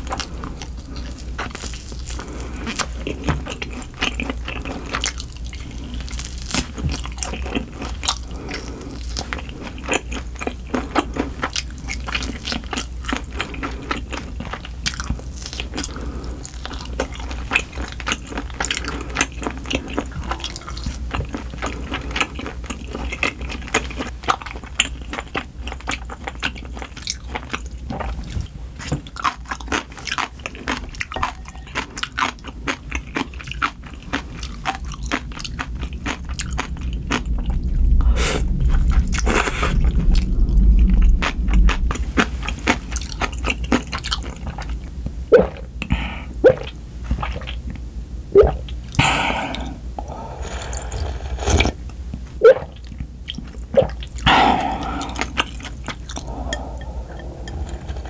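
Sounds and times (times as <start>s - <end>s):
close chewing and crunching: 0.0s - 47.9s, 48.5s - 58.0s
wet mouth clicks: 45.3s - 45.7s, 46.4s - 46.8s, 48.4s - 49.7s, 52.4s - 58.0s.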